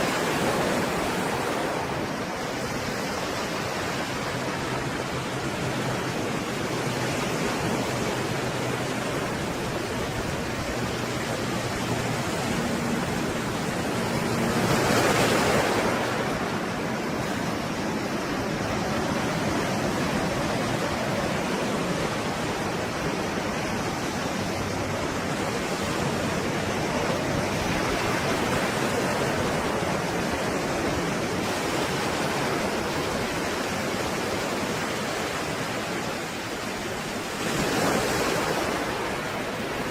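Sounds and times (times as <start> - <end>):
sea waves breaking: 0.0 - 39.9
wave crash: 9.0 - 30.3.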